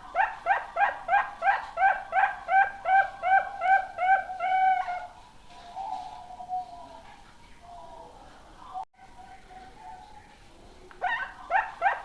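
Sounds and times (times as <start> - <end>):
dove cooing: 0.1 - 7.0.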